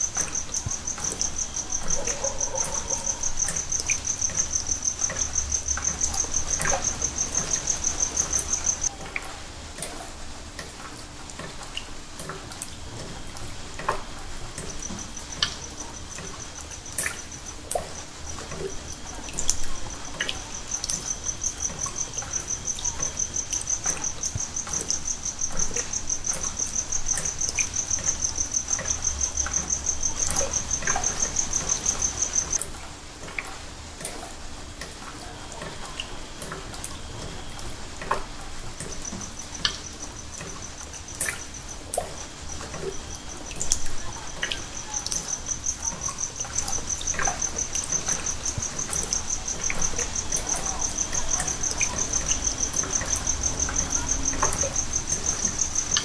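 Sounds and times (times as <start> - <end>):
insect-like chirping: 0.0 - 9.0, 14.6 - 32.6, 38.2 - 56.0
small drips and clicks: 0.0 - 56.0.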